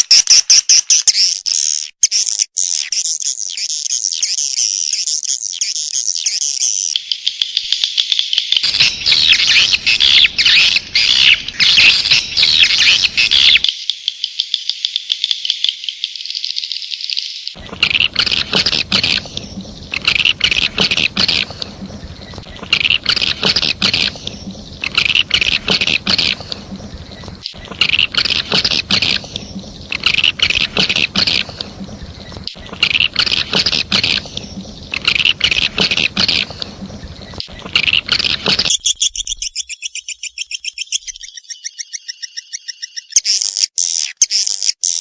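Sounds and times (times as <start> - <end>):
swiftlet twittering call: 8.6 - 13.7, 17.6 - 38.8.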